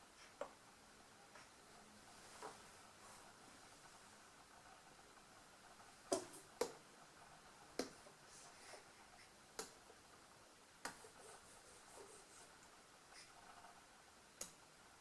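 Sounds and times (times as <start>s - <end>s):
faint rustling: 1.3s - 4.8s.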